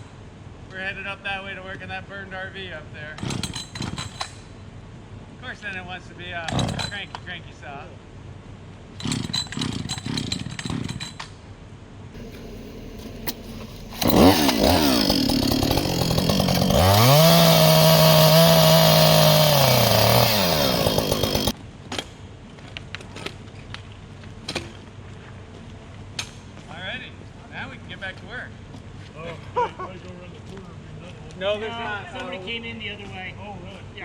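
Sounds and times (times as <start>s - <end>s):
chainsaw revving: 12.2s - 21.5s.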